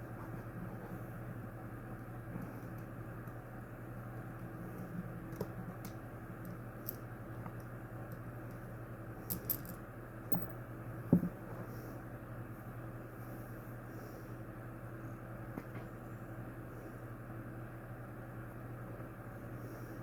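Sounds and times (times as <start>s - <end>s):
steady low hum: 0.0s - 20.0s
small clicks and clinks: 9.2s - 10.6s.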